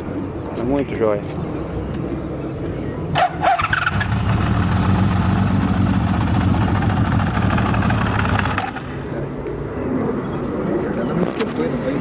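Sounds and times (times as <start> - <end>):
motorcycle engine idling: 3.6 - 9.0.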